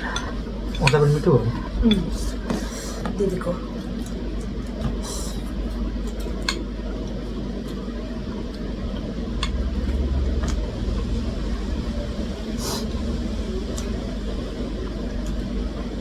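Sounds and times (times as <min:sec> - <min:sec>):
low rumble: 0:06.7 - 0:16.0.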